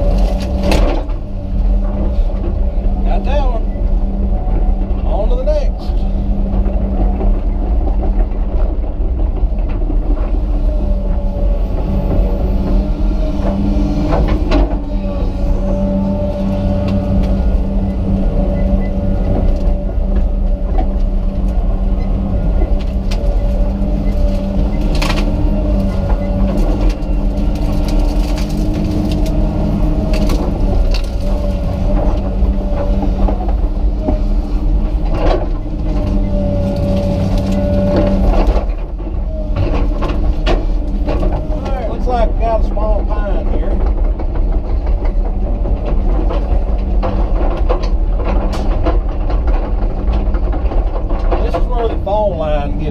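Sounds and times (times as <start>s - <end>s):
excavator diesel engine running: 0.0s - 52.9s
sharp cracks and knocks: 0.1s - 1.2s, 24.2s - 34.2s.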